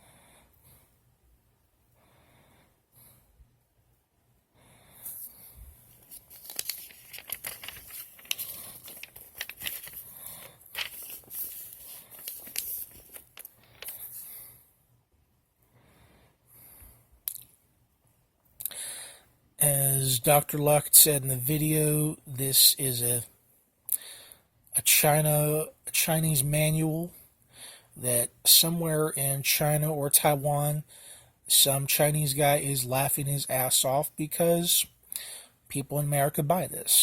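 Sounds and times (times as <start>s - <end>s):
paper rustling and crinkling: 5.1s - 14.3s.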